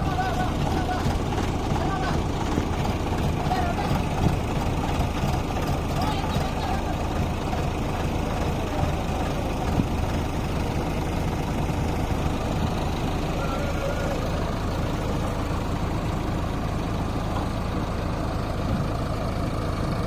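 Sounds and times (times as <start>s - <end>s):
diesel engine running at low revs: 0.0s - 20.0s.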